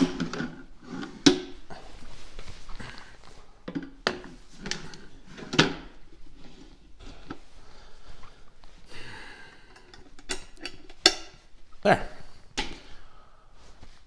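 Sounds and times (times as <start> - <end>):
quiet shuffling: 13.1 - 14.0.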